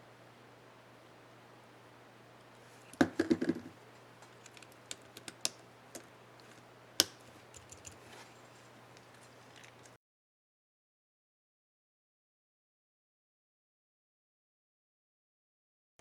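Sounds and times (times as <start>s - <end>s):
laptop keyboard keys clicking: 7.0s - 8.1s.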